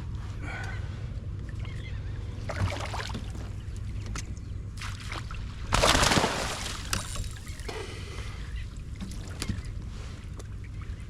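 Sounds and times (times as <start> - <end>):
fish thrashing water splashing: 4.8 - 7.7.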